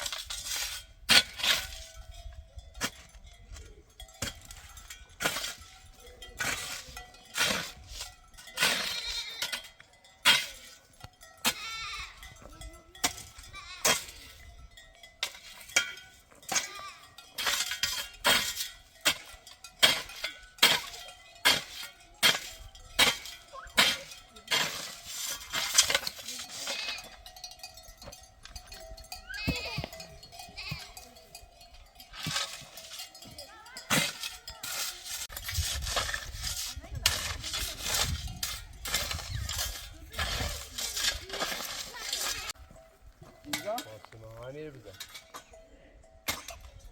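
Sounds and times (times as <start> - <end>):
sharp knocks and clinks: 0.0 - 46.9
sheep and goats bleating: 8.5 - 9.9, 11.4 - 14.2, 16.5 - 17.3, 26.3 - 27.7, 28.6 - 32.0.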